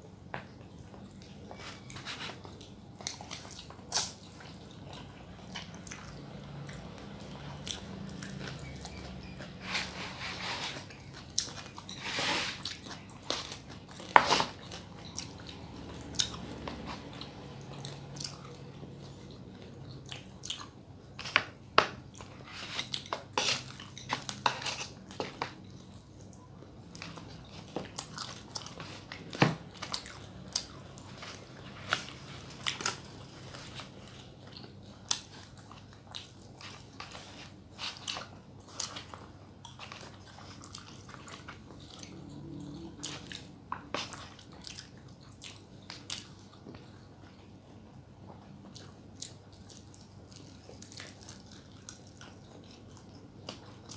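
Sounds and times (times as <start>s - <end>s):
person chewing: 1.2s - 47.5s, 48.2s - 53.9s.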